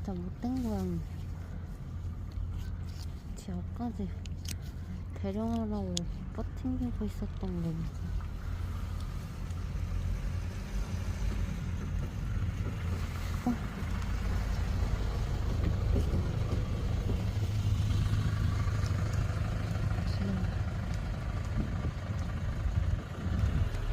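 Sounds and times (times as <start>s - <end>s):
vehicle engine rumbling: 0.0s - 23.9s.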